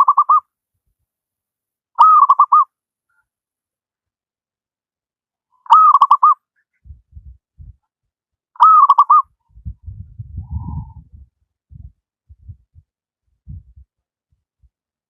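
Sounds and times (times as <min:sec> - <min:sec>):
soft low thumps: 0:06.8 - 0:07.8, 0:09.5 - 0:13.9.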